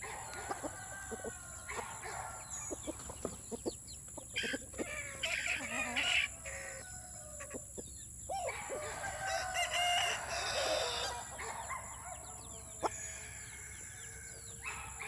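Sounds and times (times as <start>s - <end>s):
chickens clucking: 0.0s - 15.0s
rooster crowing: 0.2s - 2.5s, 4.9s - 7.5s, 8.3s - 14.7s.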